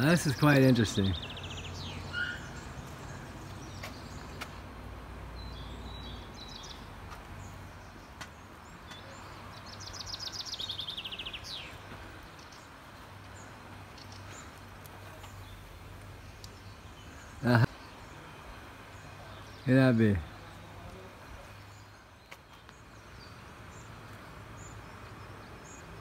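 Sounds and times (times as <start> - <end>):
songbird trilling: 0.9 - 4.5, 8.9 - 11.8.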